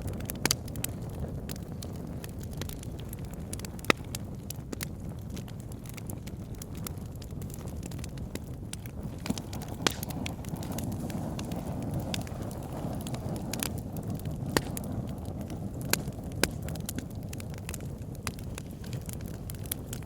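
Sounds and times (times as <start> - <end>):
fire crackles and pops: 0.0 - 20.0
low rumble of flames: 0.0 - 20.0.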